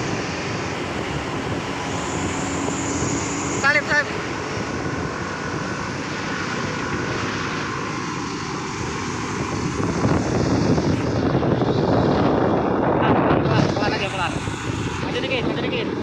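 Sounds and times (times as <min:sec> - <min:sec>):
highway traffic rushing: 0:00.0 - 0:16.0.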